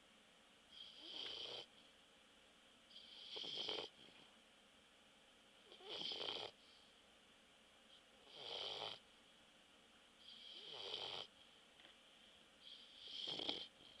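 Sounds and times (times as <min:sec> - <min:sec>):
dog snoring: 0:00.7 - 0:01.7, 0:02.9 - 0:04.2, 0:05.6 - 0:06.6, 0:08.2 - 0:09.0, 0:10.2 - 0:11.3, 0:12.6 - 0:14.0.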